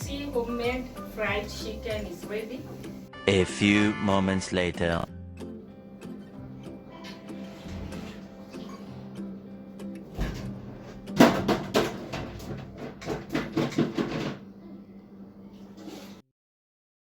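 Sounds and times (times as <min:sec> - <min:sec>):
sharp knocks and clatters: 0:10.1 - 0:14.5.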